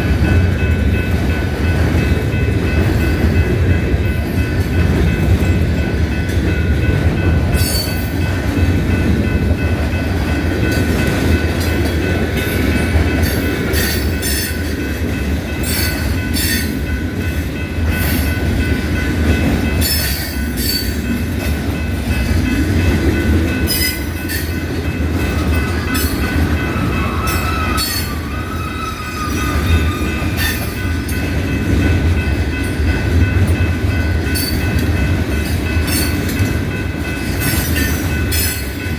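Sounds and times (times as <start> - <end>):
train wheels rumbling: 0.0 - 38.9
wheels clicking over rail joints: 0.0 - 38.9
high wheel squeal: 25.8 - 30.8.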